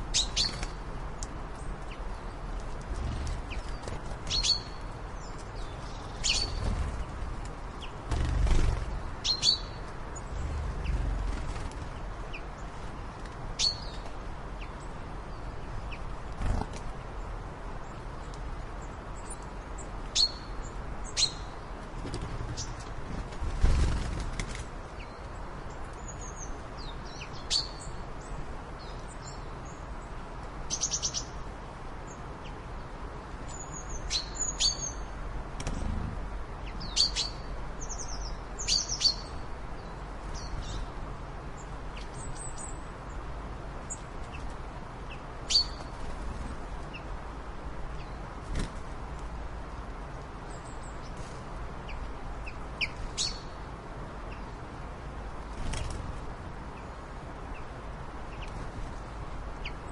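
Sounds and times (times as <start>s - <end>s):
birds chirping and trilling: 0.0s - 0.8s, 1.6s - 18.0s, 18.8s - 30.1s, 30.7s - 31.4s, 33.5s - 40.9s, 43.8s - 47.1s, 51.9s - 53.6s
steady background hiss: 0.0s - 59.9s.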